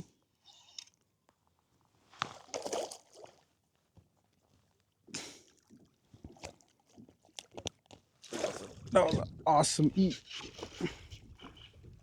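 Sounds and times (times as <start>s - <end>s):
water splashing against kayak: 5.5s - 9.5s.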